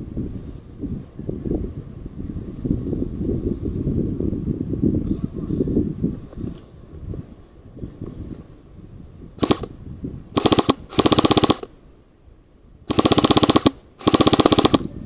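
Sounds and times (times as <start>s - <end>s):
airsoft gun firing bursts: 9.4s - 9.7s, 10.4s - 11.7s, 12.9s - 14.9s.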